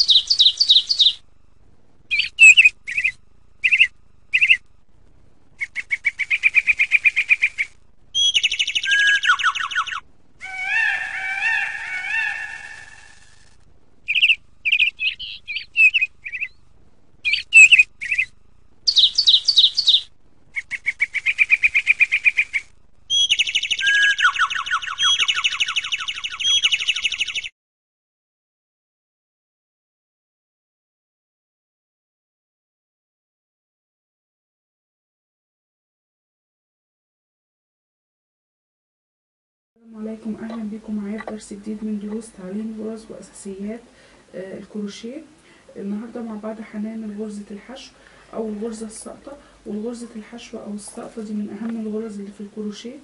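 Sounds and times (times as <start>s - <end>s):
songbird trilling and chirping: 0.0s - 1.2s, 2.1s - 4.6s, 5.6s - 12.9s, 14.1s - 16.6s, 17.2s - 27.5s, 40.4s - 42.3s.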